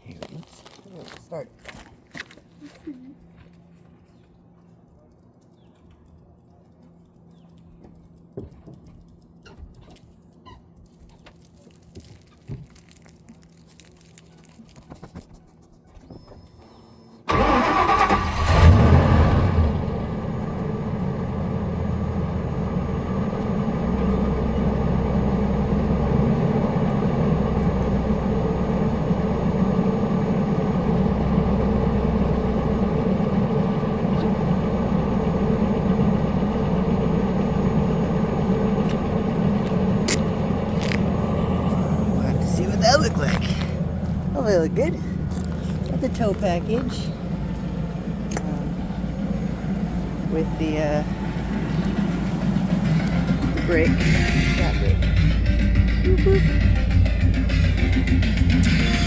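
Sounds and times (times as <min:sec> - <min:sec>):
car engine starting and idling: 0:16.1 - 0:59.0.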